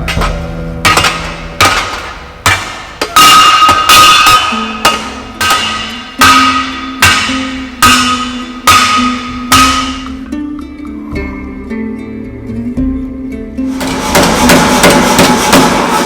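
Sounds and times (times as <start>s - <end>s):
hammer striking steel on anvil: 0.0s - 10.4s, 13.7s - 16.0s
background music low notes: 0.0s - 16.0s.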